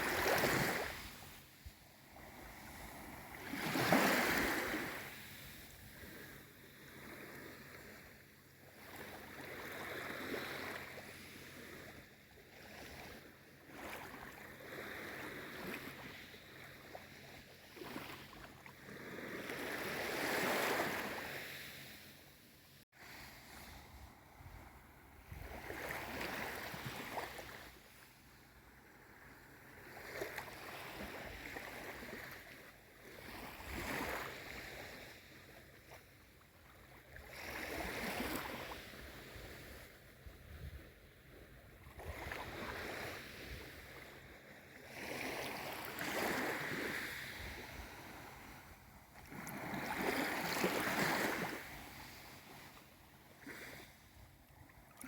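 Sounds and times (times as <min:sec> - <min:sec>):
small sea waves washing in: 0:00.0 - 0:55.0.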